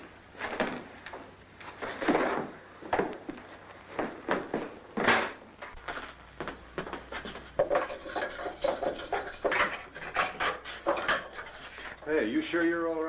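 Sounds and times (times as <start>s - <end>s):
irregular wooden knocks and clatter: 6.8s - 12.0s.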